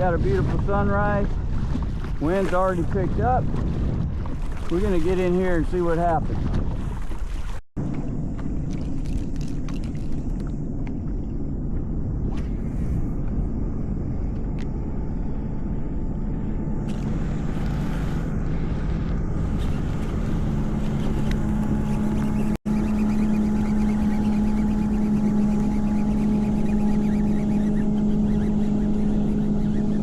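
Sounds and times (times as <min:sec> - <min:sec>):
wind rumbling on microphone: 0:00.0 - 0:30.0
steady low hum: 0:07.8 - 0:30.0.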